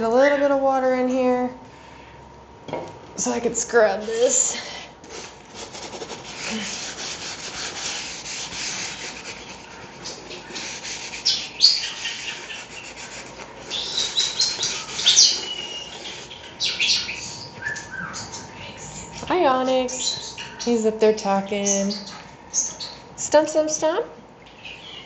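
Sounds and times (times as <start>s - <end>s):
sponge scrubbing basin: 3.8s - 22.1s
starlings chirping and whistling: 9.5s - 20.9s, 21.5s - 23.1s, 24.5s - 25.0s.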